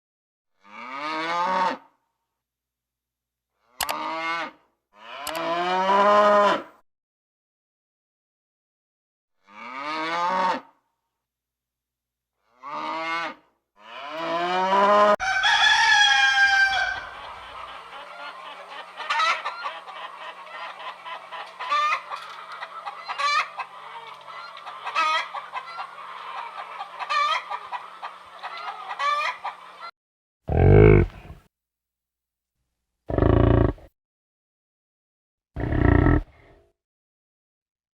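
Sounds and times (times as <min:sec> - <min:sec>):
rooster crowing: 0:14.7 - 0:17.7
hens clucking: 0:16.1 - 0:29.9, 0:30.5 - 0:31.4
loud deep animal call: 0:30.5 - 0:31.4, 0:33.1 - 0:33.9, 0:35.6 - 0:36.5.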